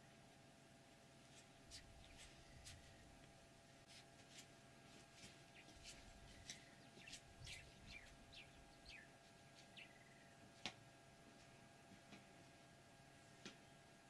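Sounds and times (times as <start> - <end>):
high bird chirps: 5.5 - 10.2.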